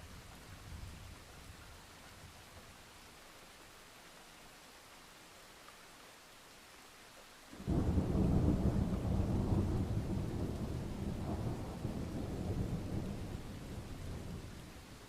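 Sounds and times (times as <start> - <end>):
faint rain hiss: 0.0 - 15.0
thunder rumbling: 7.6 - 14.5.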